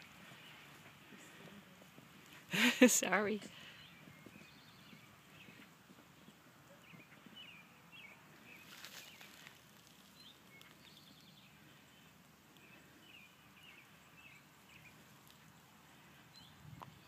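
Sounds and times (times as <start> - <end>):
small bird chirping: 3.5 - 17.0.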